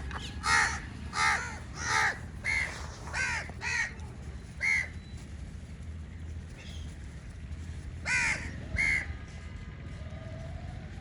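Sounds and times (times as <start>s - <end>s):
crows cawing: 0.2s - 4.0s, 4.6s - 4.9s, 8.1s - 9.1s.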